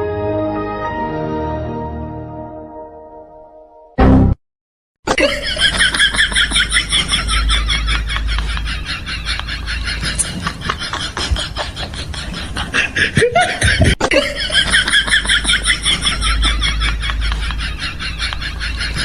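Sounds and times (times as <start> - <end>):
people laughing: 5.1 - 19.0.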